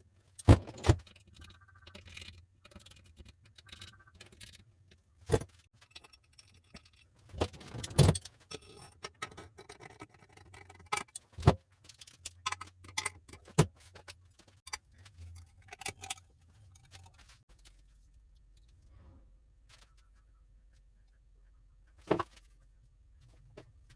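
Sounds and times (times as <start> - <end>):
faint low hum: 15.0 - 23.9.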